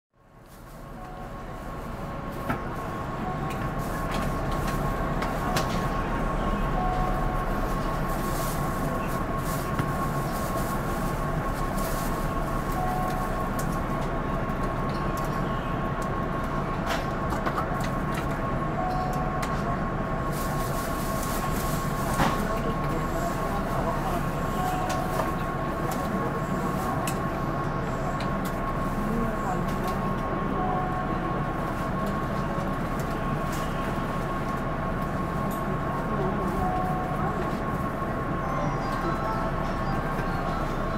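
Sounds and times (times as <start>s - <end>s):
train equipment humming and whining: 0.2s - 40.9s
short beep: 6.6s - 7.6s, 24.5s - 25.1s, 36.6s - 37.3s.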